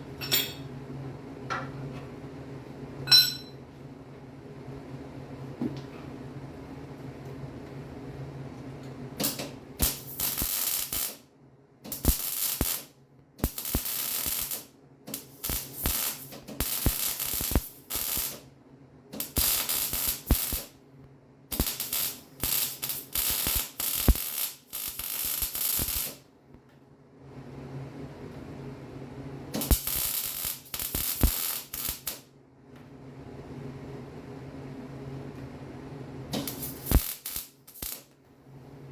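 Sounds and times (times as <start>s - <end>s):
steady low hum: 0.0s - 38.9s
welding arc crackle: 9.2s - 11.2s, 11.9s - 18.5s, 19.2s - 20.7s, 21.5s - 26.2s, 29.6s - 32.2s, 36.4s - 38.2s.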